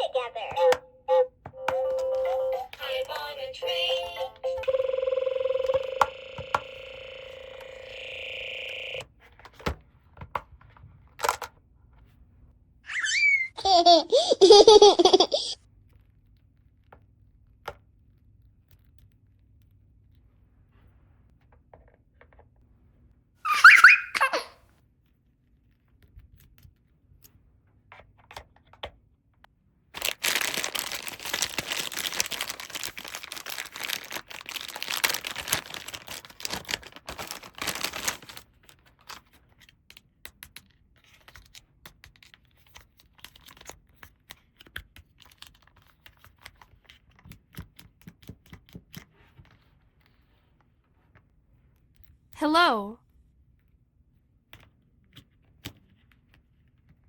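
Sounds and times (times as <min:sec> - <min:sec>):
toy recorded giggle: 0:12.9 - 0:15.6, 0:23.5 - 0:24.5
plastic packaging tearing and crinkling: 0:30.0 - 0:39.3.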